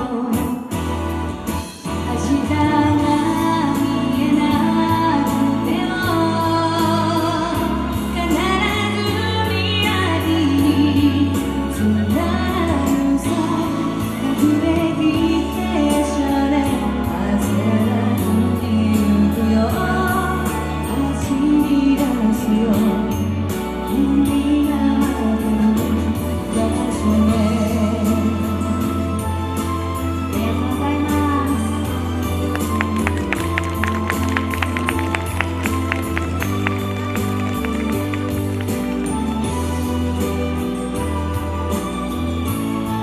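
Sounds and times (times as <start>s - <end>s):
woman singing pop song: 0.0s - 37.0s
backing music with beat: 27.7s - 43.0s.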